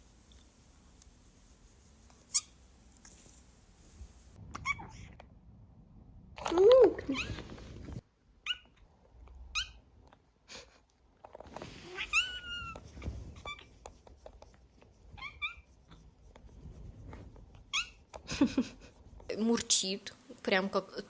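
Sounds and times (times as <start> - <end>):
cat meowing: 11.8 - 13.7, 15.2 - 15.7.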